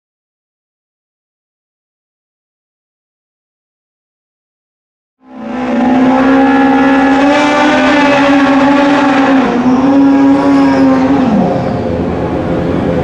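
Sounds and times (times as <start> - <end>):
motorcycle engine at high revs: 5.3 - 11.7.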